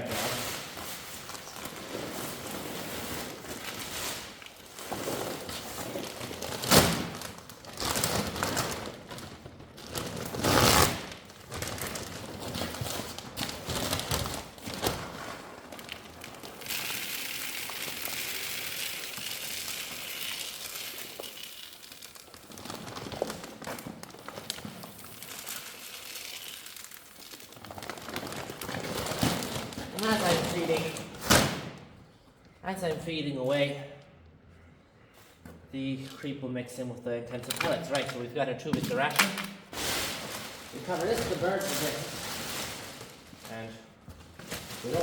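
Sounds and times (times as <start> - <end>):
feed sack crinkling and rustling: 0.0 - 31.2, 38.9 - 45.0
feed pellets pouring: 15.8 - 23.3, 24.2 - 28.8.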